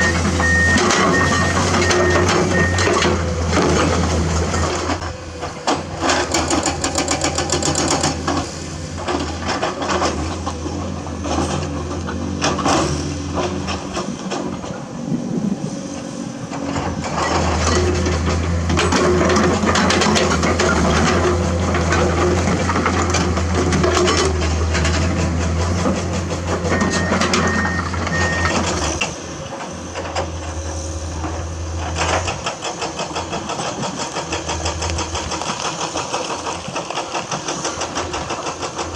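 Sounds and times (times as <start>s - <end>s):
short high beeps: 0.0s - 2.9s, 26.7s - 28.6s
excavator diesel engine running: 0.0s - 38.9s.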